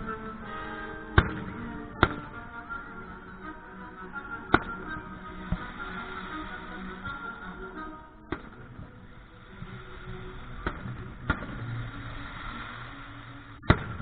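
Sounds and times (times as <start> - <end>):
steady low rumble: 4.1 - 14.0.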